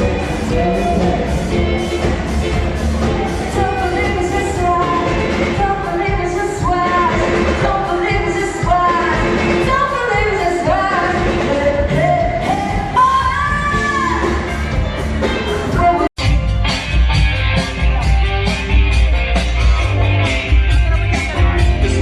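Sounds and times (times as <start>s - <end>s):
pop-rock song with lead singer: 0.0s - 16.8s.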